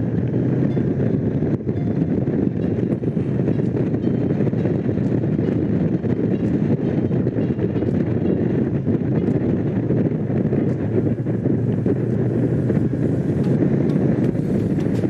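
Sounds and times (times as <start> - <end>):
wind noise on microphone: 0.0 - 15.0
motorcycle engine cruising: 10.2 - 15.0.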